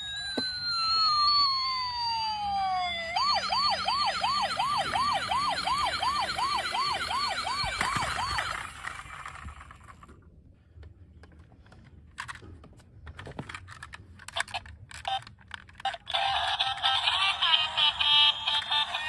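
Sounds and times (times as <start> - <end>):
tinny electronic toy tune: 0.0 - 9.4
toy siren wailing: 0.0 - 9.6, 15.9 - 19.0
plastic toy cars clicking: 11.3 - 17.0.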